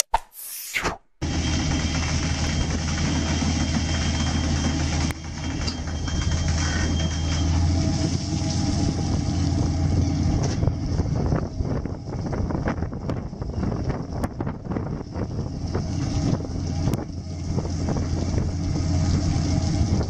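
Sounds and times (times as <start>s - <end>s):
boat engine and machinery humming: 1.2s - 20.0s.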